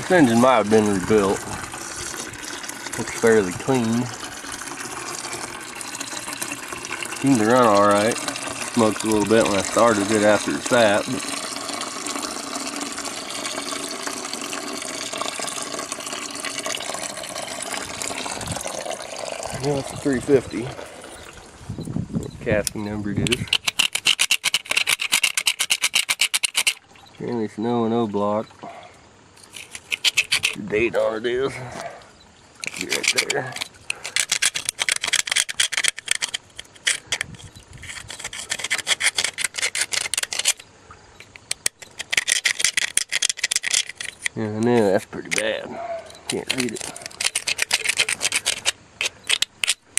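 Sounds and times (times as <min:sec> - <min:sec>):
scrubbing on cast iron: 0:00.0 - 0:21.6, 0:29.4 - 0:30.9, 0:32.6 - 0:40.6, 0:46.2 - 0:49.8.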